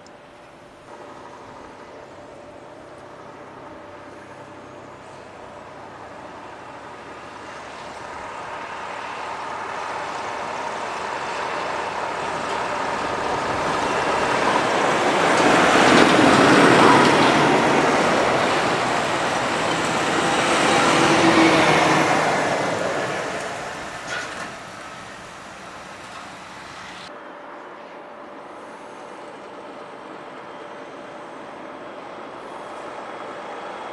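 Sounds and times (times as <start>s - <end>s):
heavy truck driving past: 3.9s - 27.1s.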